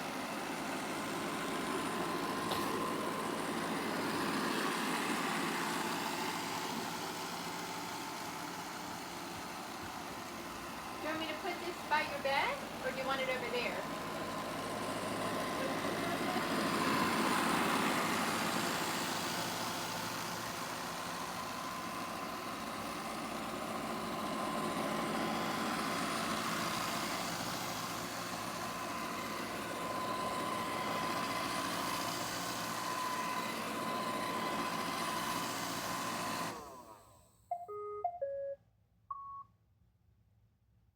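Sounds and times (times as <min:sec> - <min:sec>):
robot vacuum whirring: 0:10.6 - 0:37.0
electronic tones: 0:37.5 - 0:39.4.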